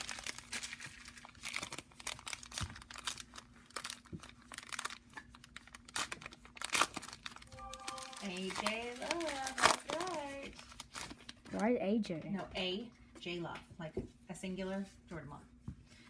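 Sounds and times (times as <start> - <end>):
foil wrapper tearing and crinkling: 0.0 - 11.6.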